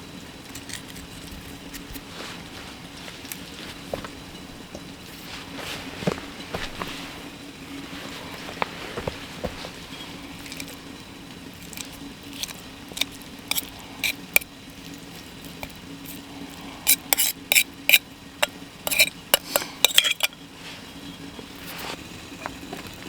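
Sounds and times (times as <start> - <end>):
metal utensil clinking on cookware: 18.4 - 20.4.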